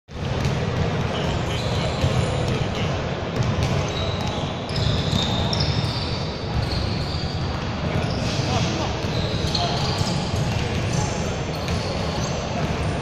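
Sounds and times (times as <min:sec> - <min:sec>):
basketball dribbling on court: 0:00.1 - 0:08.2, 0:09.0 - 0:13.0
players' voices and shouts: 0:07.8 - 0:13.0.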